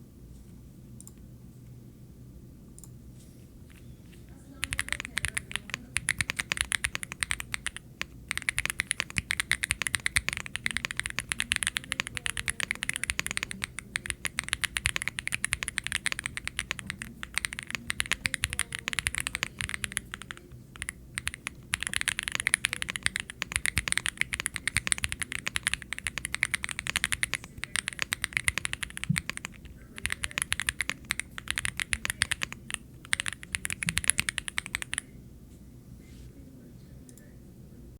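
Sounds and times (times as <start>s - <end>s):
mechanical keyboard typing: 4.6s - 35.1s.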